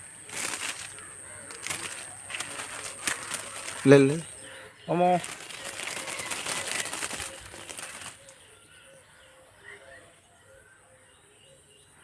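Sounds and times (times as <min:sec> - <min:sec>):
loud crackling rustle: 0:00.0 - 0:08.4.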